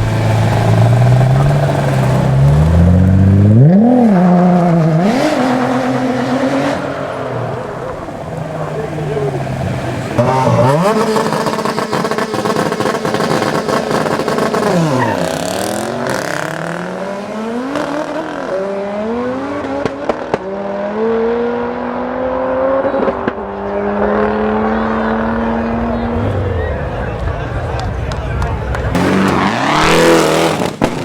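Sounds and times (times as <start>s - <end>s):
car engine revving: 0.0s - 31.0s
exhaust pops: 27.2s - 31.0s.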